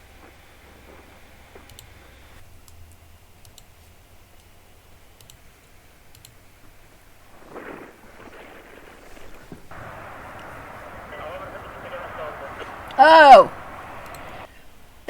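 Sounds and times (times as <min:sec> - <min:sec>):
faint sharp clicks: 0:02.6 - 0:03.8, 0:05.2 - 0:05.4, 0:06.1 - 0:06.4, 0:09.7 - 0:14.5
low steady hum: 0:09.7 - 0:14.5.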